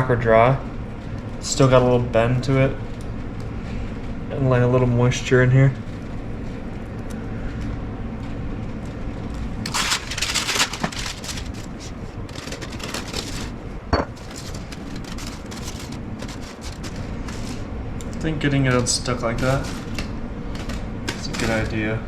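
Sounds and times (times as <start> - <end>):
steady hum: 0.0 - 21.1
dry food crackling by hand: 9.6 - 18.2.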